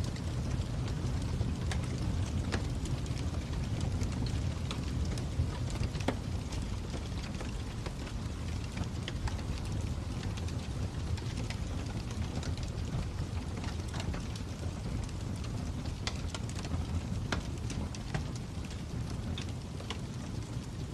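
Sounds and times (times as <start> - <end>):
fire crackling: 0.0 - 20.9.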